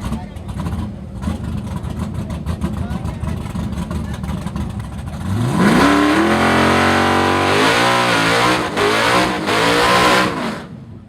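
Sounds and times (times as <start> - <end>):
car engine revving hard: 5.2 - 10.8.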